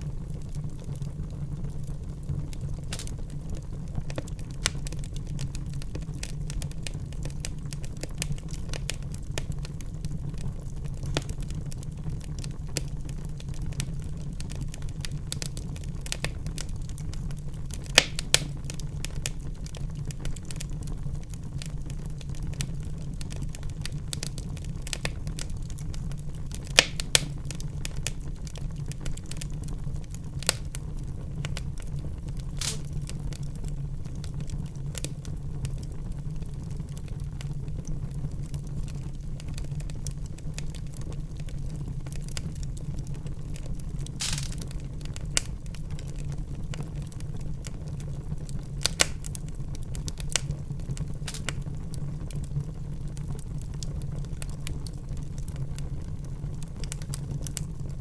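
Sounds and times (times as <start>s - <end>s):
burning logs crackling and popping: 0.0s - 58.0s
fire flames rumbling: 0.0s - 58.0s.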